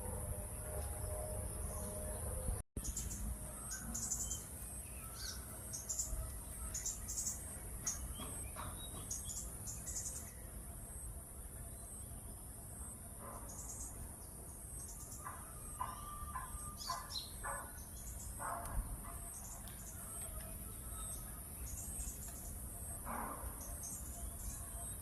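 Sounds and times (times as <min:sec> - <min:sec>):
bird chirps: 0:02.8 - 0:11.0, 0:14.8 - 0:25.0.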